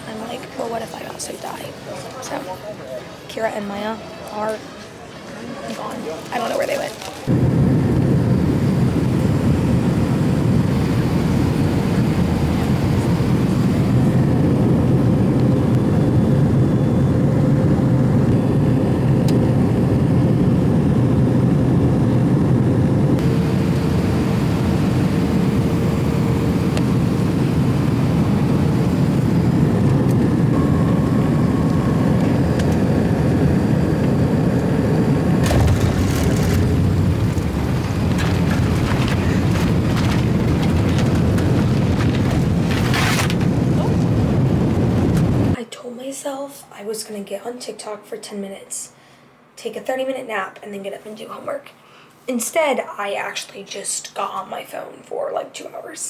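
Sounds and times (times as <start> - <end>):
rush of engines and air: 7.3 - 45.6
faint steady hum: 7.3 - 56.0.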